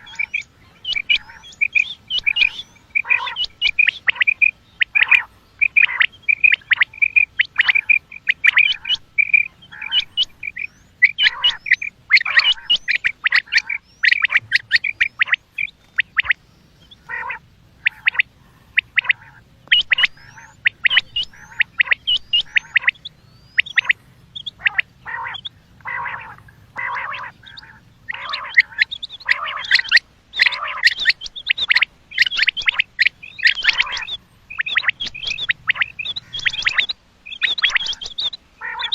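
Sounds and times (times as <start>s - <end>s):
quail calling: 0.0s - 38.9s.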